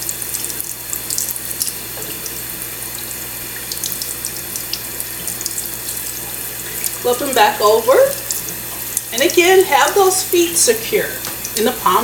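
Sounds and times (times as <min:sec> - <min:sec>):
tap water splashing: 0:00.0 - 0:02.4, 0:03.0 - 0:07.1, 0:08.1 - 0:09.4, 0:11.2 - 0:11.7.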